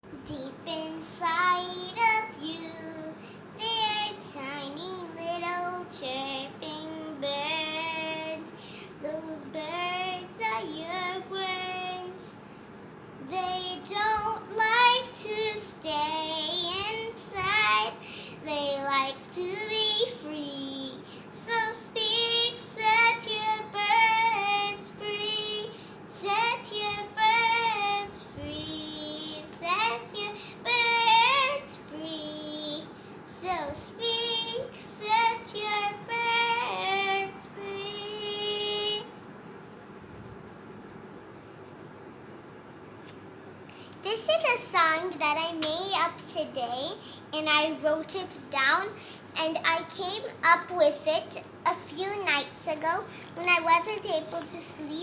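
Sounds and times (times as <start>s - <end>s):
child singing alone: 13.2s - 39.2s, 44.0s - 55.0s.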